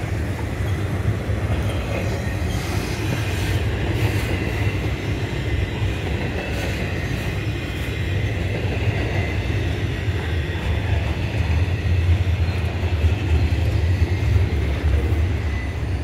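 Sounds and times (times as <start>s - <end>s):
steel wheels rumbling on track: 0.0s - 16.0s.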